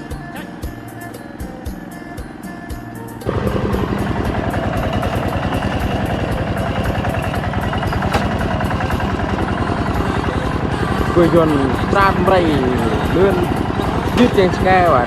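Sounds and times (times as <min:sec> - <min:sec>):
tractor diesel engine running: 0:03.3 - 0:15.0.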